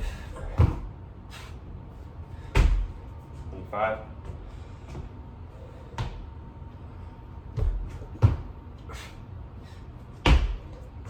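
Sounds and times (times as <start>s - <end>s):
hands and feet thudding on floor: 0.0s - 0.9s, 2.4s - 3.4s, 5.9s - 6.3s, 7.5s - 8.6s, 10.2s - 10.8s.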